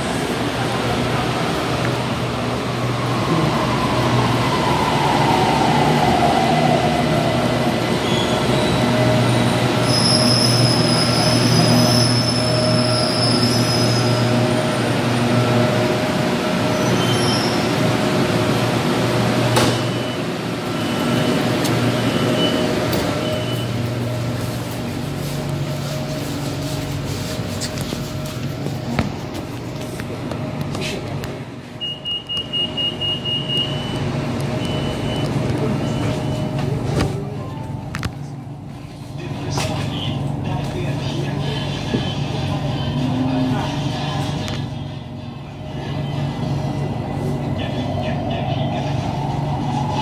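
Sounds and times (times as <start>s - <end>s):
high brake squeal: 8.0s - 9.0s, 9.8s - 14.4s, 16.7s - 17.9s, 19.8s - 23.8s.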